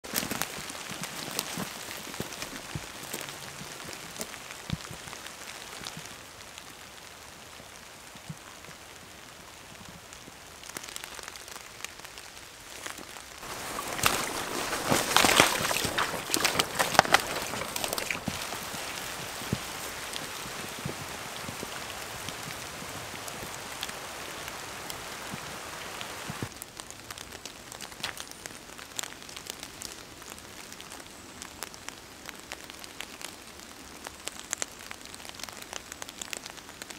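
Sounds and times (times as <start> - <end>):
squelching footsteps through bog: 0.0 - 6.0, 12.6 - 24.0
close raindrops: 0.0 - 36.9
steady rain in forest: 0.0 - 36.9.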